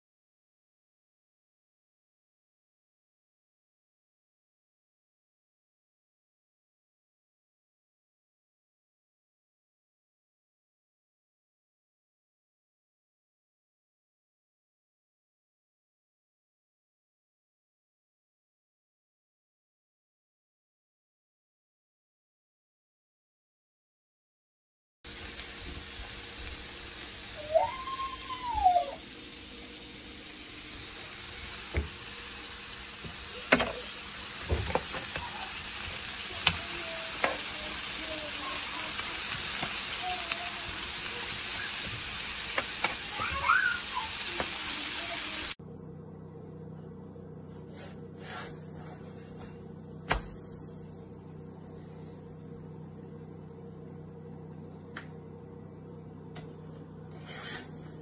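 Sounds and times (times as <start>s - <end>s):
food sizzling on a griddle: 25.1s - 45.6s
low hum: 45.6s - 58.0s.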